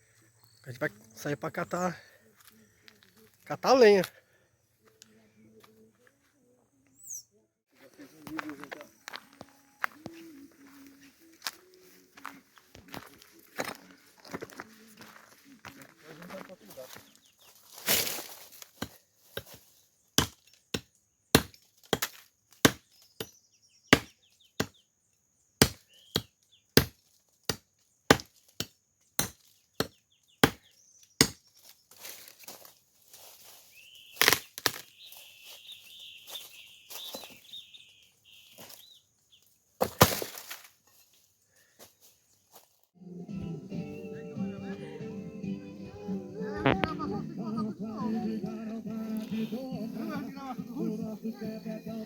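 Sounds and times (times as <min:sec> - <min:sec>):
axe chopping firewood: 0:17.9 - 0:24.8, 0:25.6 - 0:31.6, 0:34.2 - 0:34.8, 0:39.8 - 0:40.6.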